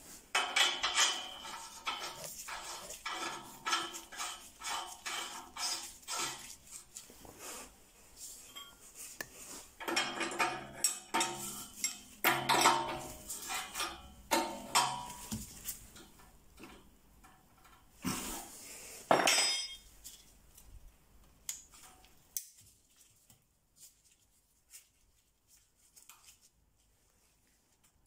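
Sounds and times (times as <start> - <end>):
metal hand tools clinking and scraping: 0.3 - 7.0, 8.4 - 9.1, 9.8 - 15.3, 19.2 - 20.3.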